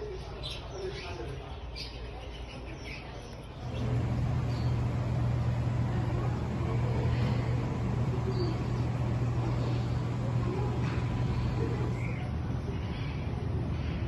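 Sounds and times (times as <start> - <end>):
low hum with noisy rush: 3.6 - 14.0.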